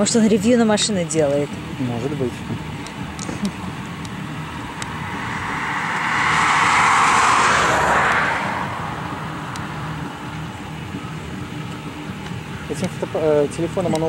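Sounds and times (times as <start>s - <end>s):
car passing by: 4.0s - 11.4s.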